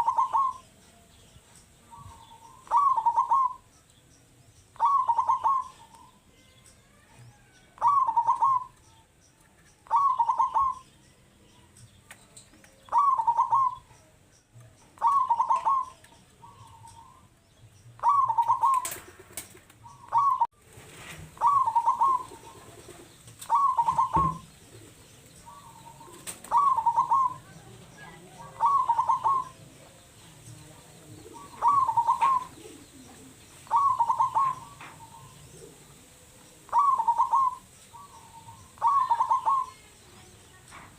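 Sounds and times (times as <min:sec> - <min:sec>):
dove cooing: 0:00.0 - 0:00.7, 0:01.8 - 0:03.7, 0:04.8 - 0:06.2, 0:07.2 - 0:08.9, 0:09.8 - 0:10.9, 0:12.8 - 0:13.9, 0:15.0 - 0:17.3, 0:18.0 - 0:20.6, 0:21.2 - 0:40.0.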